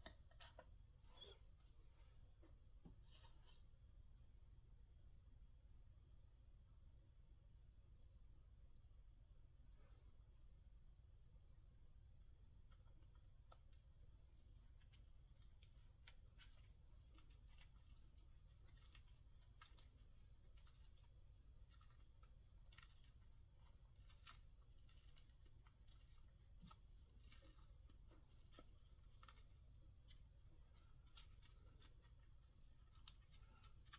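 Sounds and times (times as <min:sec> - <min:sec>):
small clicks and rustles: 0:12.2 - 0:33.9.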